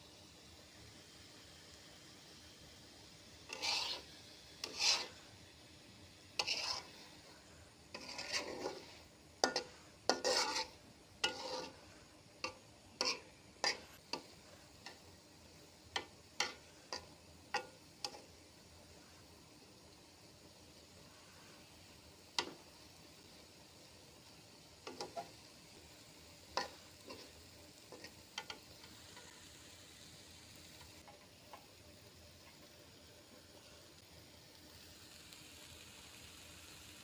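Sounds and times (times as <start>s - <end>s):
metal spoon scraping cooking pan: 3.4s - 5.3s, 6.4s - 15.1s, 15.9s - 18.4s, 22.4s - 22.6s, 24.8s - 29.4s.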